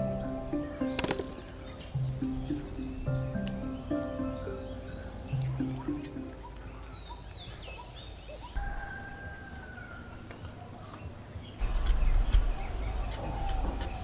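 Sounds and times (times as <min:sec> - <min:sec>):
high-pitched insect drone: 0:00.0 - 0:06.8
birds chirping and whistling: 0:00.0 - 0:14.0
sharp clicks: 0:00.8 - 0:02.6.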